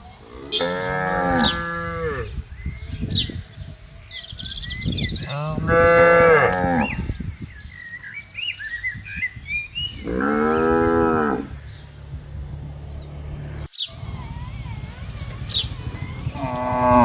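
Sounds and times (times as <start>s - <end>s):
cows mooing: 0.2s - 2.4s, 5.2s - 7.1s, 9.9s - 11.8s, 14.3s - 17.0s
faint bird chirps: 13.7s - 16.7s.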